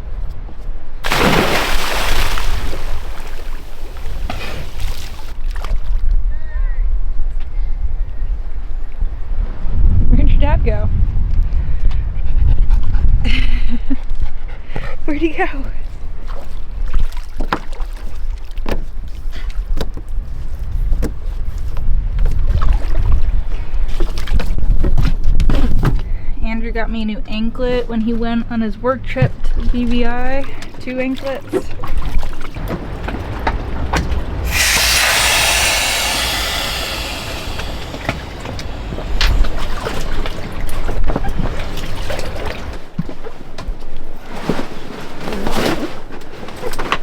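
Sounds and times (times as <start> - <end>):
person diving into water: 1.0 - 5.6, 32.5 - 42.9
smaller water splashes: 1.0 - 5.9, 31.2 - 42.9
wind rumbling on microphone: 2.4 - 13.9, 32.5 - 43.0.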